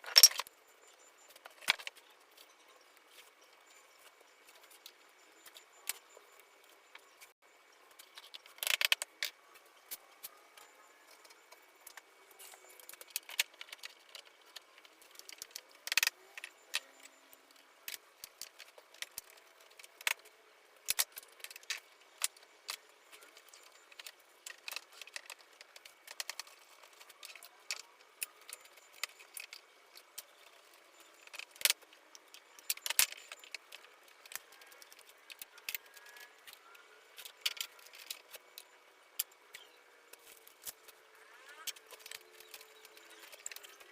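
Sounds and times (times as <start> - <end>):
wood pieces clicking and knocking: 0.0 - 0.5, 1.3 - 2.0, 8.0 - 9.4, 11.1 - 40.9, 41.7 - 43.9.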